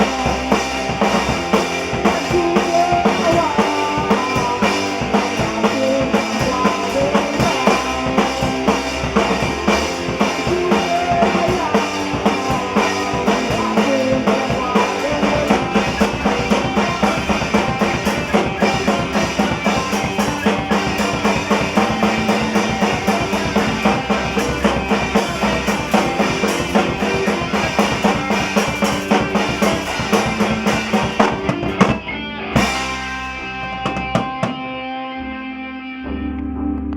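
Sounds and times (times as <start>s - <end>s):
rock band playing live: 0.0s - 36.9s
guitar chord ringing: 31.7s - 36.9s.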